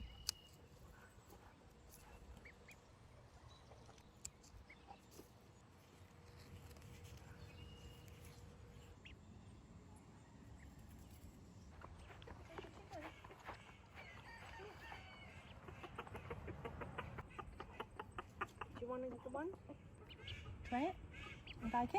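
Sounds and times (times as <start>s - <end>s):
faint bird chirps: 0.0s - 1.1s.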